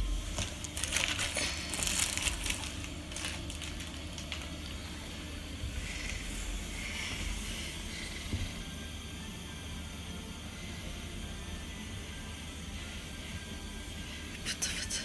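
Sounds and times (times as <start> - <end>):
crinkly material rustling: 0.0 - 5.1.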